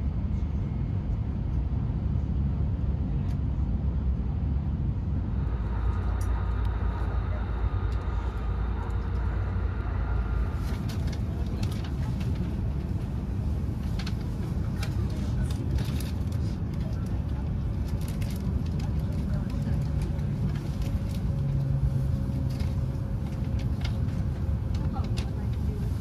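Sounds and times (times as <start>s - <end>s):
train cabin low rumble: 0.0s - 26.0s
faint high whine: 5.1s - 11.8s.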